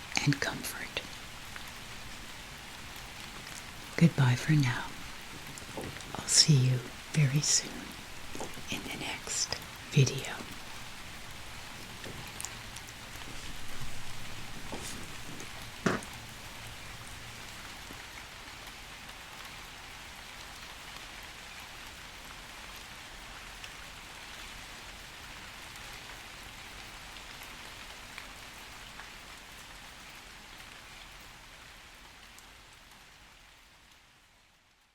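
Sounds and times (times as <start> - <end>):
gentle rain: 0.0 - 34.9.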